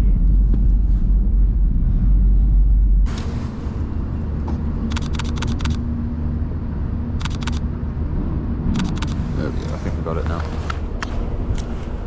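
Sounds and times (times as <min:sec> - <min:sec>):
low rumble: 0:00.0 - 0:12.0
camera shutter burst: 0:04.9 - 0:05.8.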